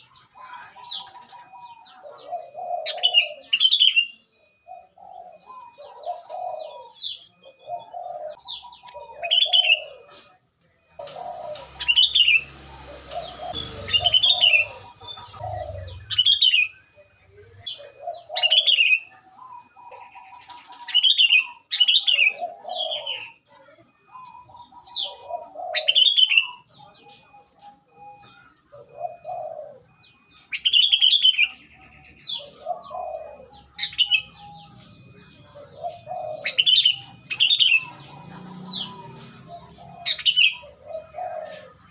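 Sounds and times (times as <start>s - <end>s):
bird chirping calls: 0.0s - 41.9s.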